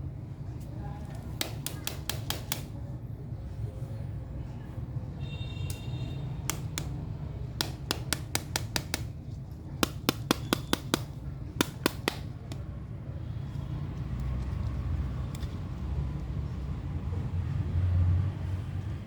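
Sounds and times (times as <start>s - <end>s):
sharp clicks and taps: 1.4s - 2.7s, 6.4s - 7.0s, 7.6s - 9.2s, 9.8s - 12.7s.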